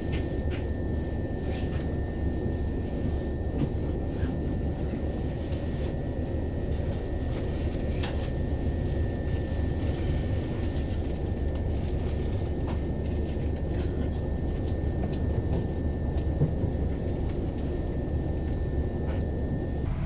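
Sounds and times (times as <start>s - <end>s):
machinery low rumble: 15.0s - 20.0s.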